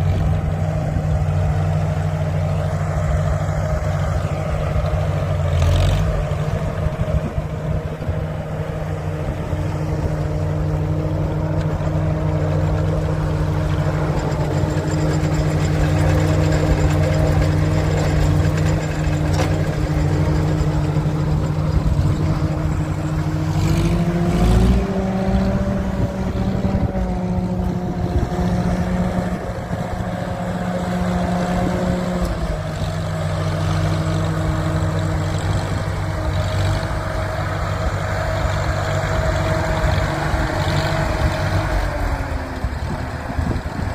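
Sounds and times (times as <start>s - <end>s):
tractor engine running: 0.0s - 43.9s
engine knock: 12.5s - 23.9s.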